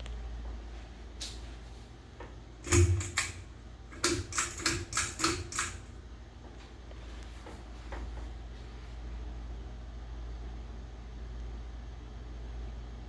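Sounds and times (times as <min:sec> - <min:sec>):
steady low hum: 0:00.0 - 0:13.0
fan switch clicking: 0:02.6 - 0:06.0.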